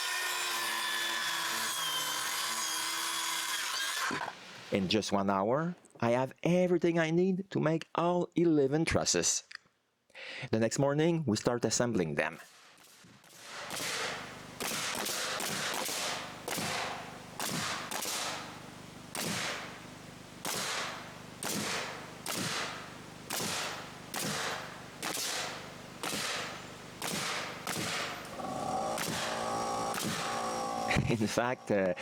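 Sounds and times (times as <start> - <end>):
hammer driving nails into wood: 21.5 - 28.4, 29.0 - 30.5.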